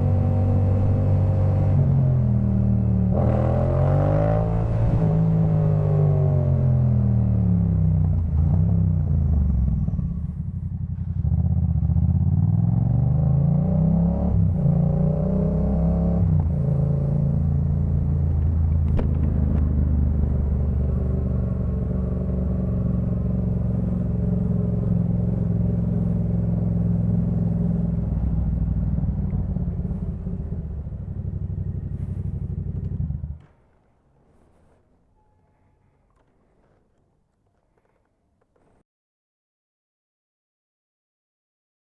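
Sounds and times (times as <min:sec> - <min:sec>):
motorcycle engine revving: 0:00.0 - 0:33.5.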